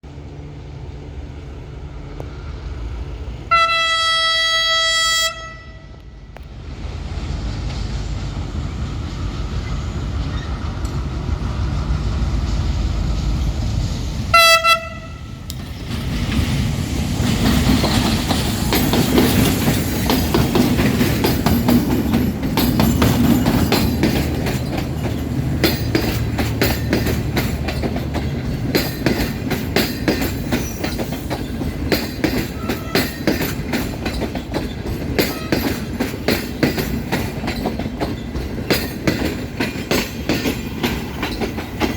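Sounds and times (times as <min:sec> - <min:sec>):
locomotive rumbling: 0:00.0 - 0:41.9
train horn blast: 0:03.4 - 0:06.4, 0:14.3 - 0:15.5, 0:32.6 - 0:33.2, 0:35.2 - 0:35.8
train wheels clacking on rails: 0:05.9 - 0:41.9.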